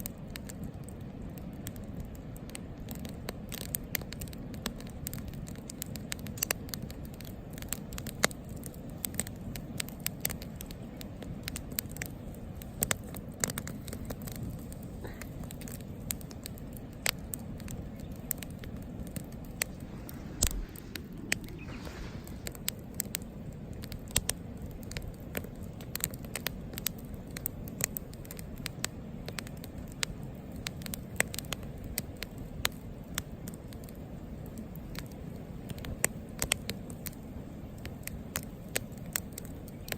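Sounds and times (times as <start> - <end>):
campfire crackling: 0.0 - 39.9
fire pops and snaps: 0.0 - 39.9
low steady rushing: 18.7 - 22.8.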